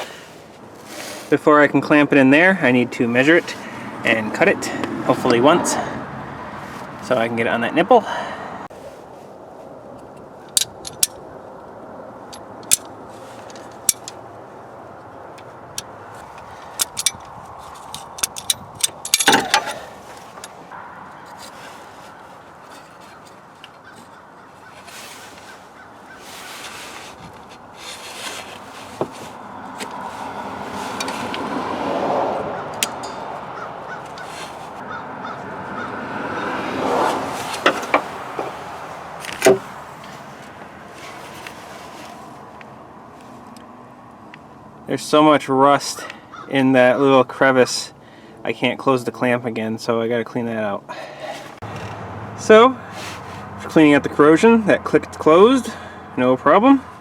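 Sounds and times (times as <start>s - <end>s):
rubbing and scraping: 0.0s - 1.5s, 15.4s - 31.7s, 32.4s - 35.0s, 36.8s - 42.5s, 52.8s - 53.5s
tools clicking and knocking: 10.0s - 11.2s, 12.3s - 12.9s, 13.5s - 14.2s, 15.4s - 20.5s, 32.7s - 33.4s, 37.5s - 38.6s.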